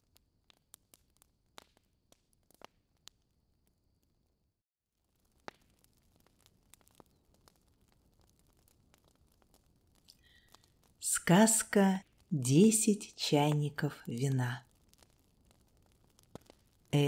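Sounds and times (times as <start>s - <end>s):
fireplace crackling: 5.0s - 17.0s.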